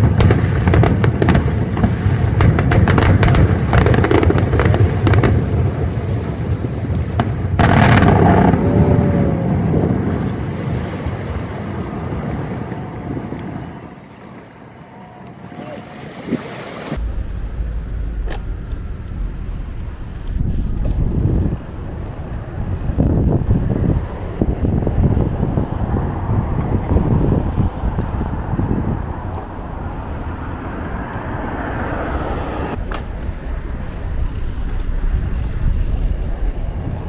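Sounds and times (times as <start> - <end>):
deep rumble: 0.0 - 14.0, 17.0 - 37.0
fireworks crackling and booming: 0.0 - 14.4, 32.2 - 37.0
wind buffeting microphone: 0.0 - 37.0.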